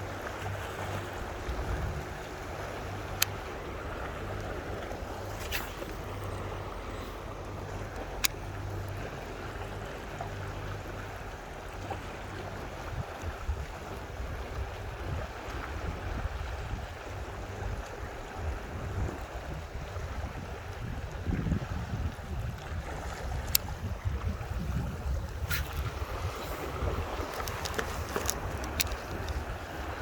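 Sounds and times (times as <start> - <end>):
wind buffeting microphone: 12.5 - 30.0.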